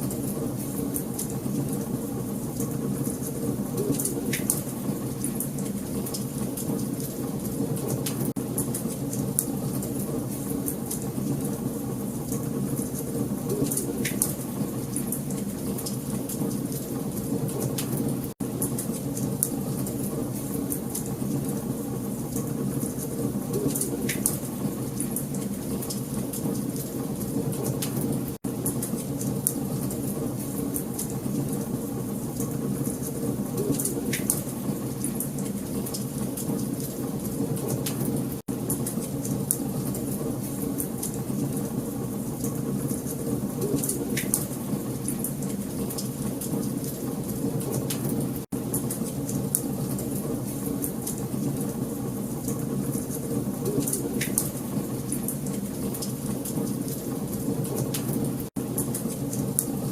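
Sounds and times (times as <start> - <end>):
wood fire crackling: 0.0 - 59.9
wood fire crackling and popping: 2.6 - 11.6, 12.3 - 21.6.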